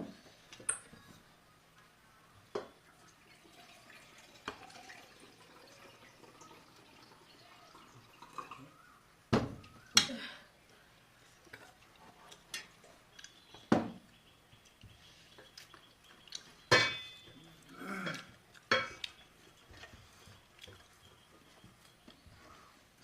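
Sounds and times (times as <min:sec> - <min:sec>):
utensils clanking on cookware: 0:16.7 - 0:17.4.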